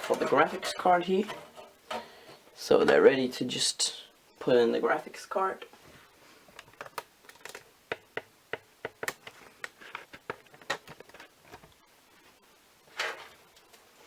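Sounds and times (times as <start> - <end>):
plastic connectors clicking: 6.6 - 8.1.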